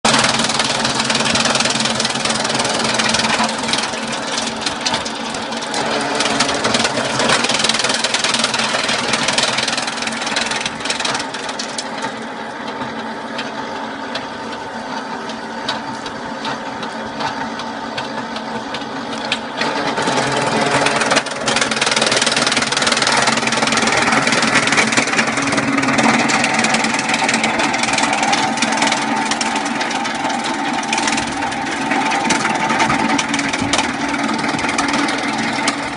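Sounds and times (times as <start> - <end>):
machine hum: 0.0 - 35.9.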